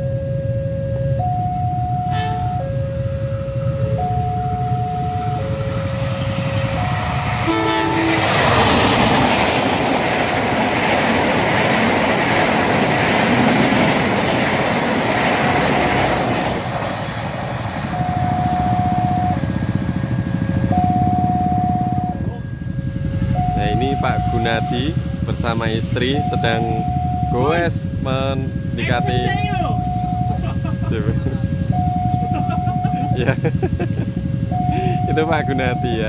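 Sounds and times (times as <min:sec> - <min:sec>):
level crossing warning tones: 0:00.0 - 0:16.9, 0:17.6 - 0:33.6, 0:34.2 - 0:36.0
train horn blast: 0:02.0 - 0:02.7, 0:07.4 - 0:08.6
train carriages clattering over rails: 0:08.0 - 0:18.0.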